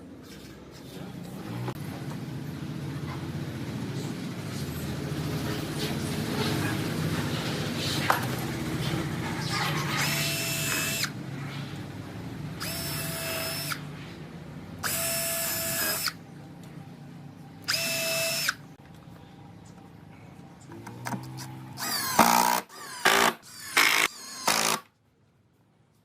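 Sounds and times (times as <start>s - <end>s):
electric drill whining: 10.0s - 11.2s, 12.6s - 13.8s, 14.8s - 16.2s, 17.7s - 18.6s, 21.2s - 24.8s.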